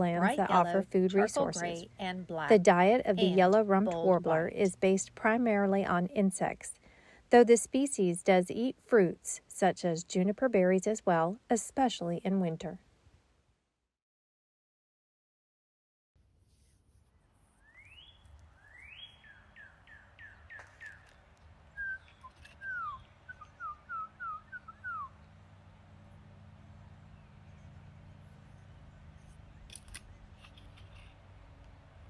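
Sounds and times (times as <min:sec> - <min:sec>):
faint low background hum: 0:00.0 - 0:13.1, 0:18.0 - 0:32.0
warbler song: 0:17.6 - 0:31.3.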